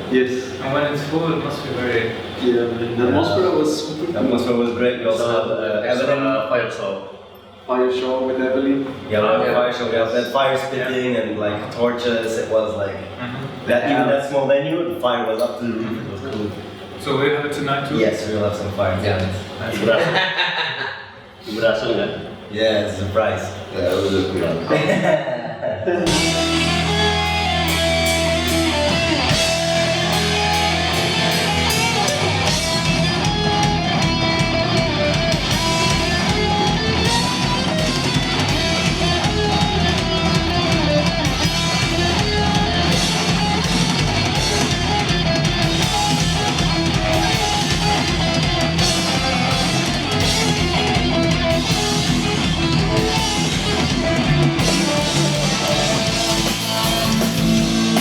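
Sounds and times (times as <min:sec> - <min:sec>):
distorted electric guitars: 0:26.0 - 0:58.0
drum kit: 0:26.0 - 0:58.0
fast kick-drum beat: 0:26.1 - 0:58.0.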